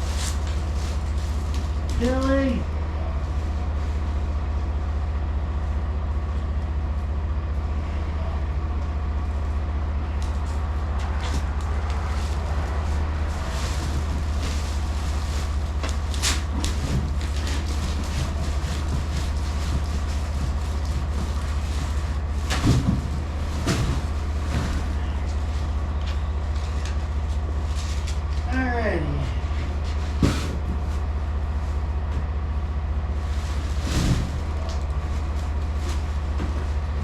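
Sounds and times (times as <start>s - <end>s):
truck diesel engine idling: 0.0s - 37.0s.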